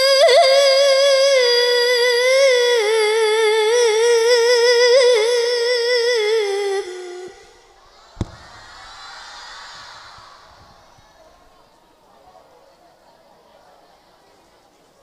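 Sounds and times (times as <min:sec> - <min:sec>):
woman reciting melodically: 0:00.0 - 0:07.8.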